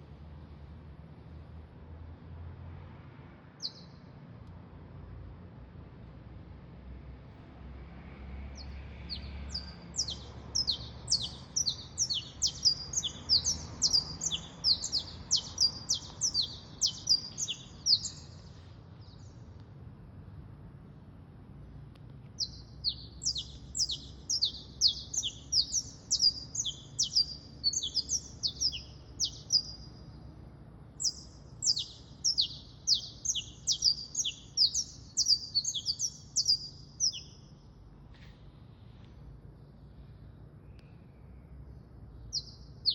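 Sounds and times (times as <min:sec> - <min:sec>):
songbird singing high notes: 0:08.6 - 0:18.4, 0:22.4 - 0:30.0, 0:31.0 - 0:37.4.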